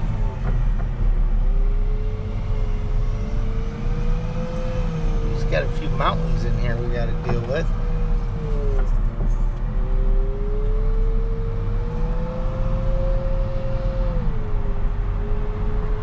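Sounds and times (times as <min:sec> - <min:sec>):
diesel engine rumbling under load: 0:00.0 - 0:10.5.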